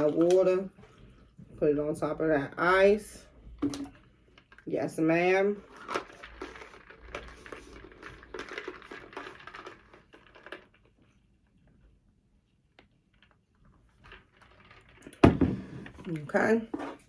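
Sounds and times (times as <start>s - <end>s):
water poured over ice: 5.6s - 11.2s
ice crackling and clinking: 5.7s - 10.9s.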